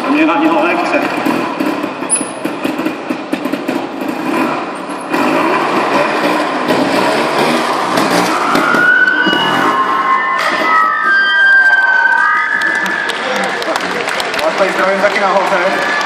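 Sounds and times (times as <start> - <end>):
motorcycle engine revving: 0.0 - 9.9.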